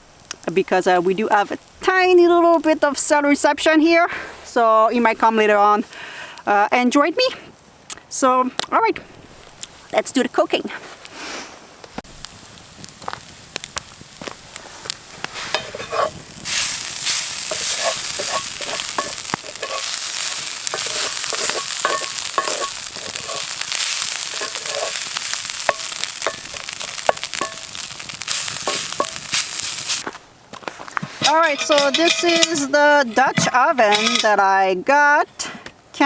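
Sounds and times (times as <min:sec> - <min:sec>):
food sizzling in a pan: 0:10.8 - 0:30.1, 0:31.1 - 0:34.5
utensil clicking and scraping: 0:15.2 - 0:30.0, 0:31.2 - 0:34.4.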